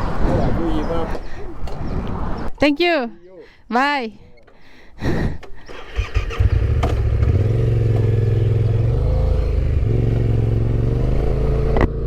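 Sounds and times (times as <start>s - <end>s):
motorcycle engine idling: 5.6s - 11.8s.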